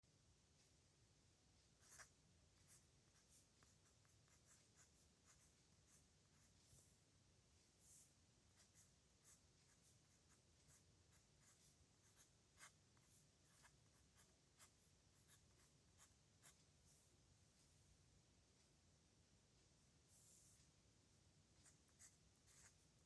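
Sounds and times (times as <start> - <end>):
pen scratching on paper: 1.8 - 7.0, 7.6 - 17.0, 21.6 - 23.0.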